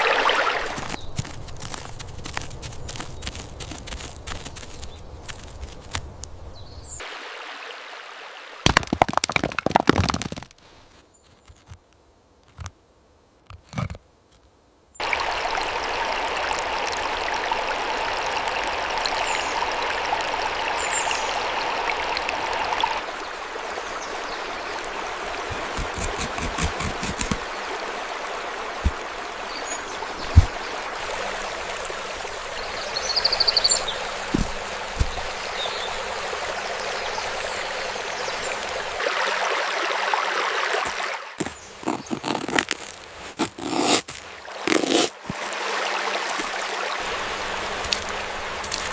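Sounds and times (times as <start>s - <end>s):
stream running water: 0.0s - 10.8s, 15.0s - 48.9s.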